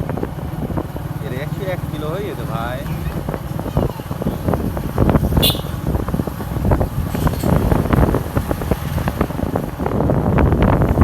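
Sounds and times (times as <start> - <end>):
motorcycle road and engine rumble: 0.0 - 11.0
wind buffeting microphone: 0.0 - 11.0.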